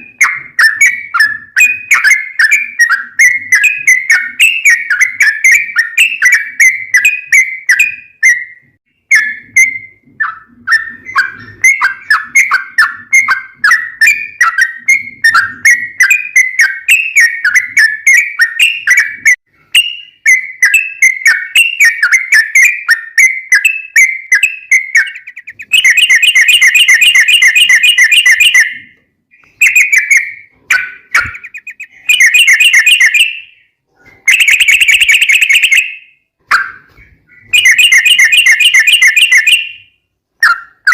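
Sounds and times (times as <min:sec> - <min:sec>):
bulbul singing chirping whistles: 0:00.0 - 0:40.9
rapid rolling bird trills: 0:21.5 - 0:28.8, 0:29.5 - 0:35.9.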